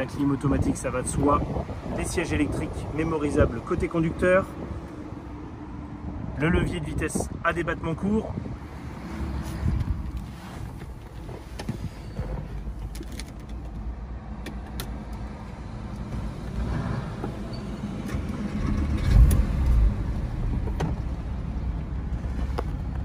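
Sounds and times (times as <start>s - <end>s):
car engine starting and idling: 10.0s - 23.0s.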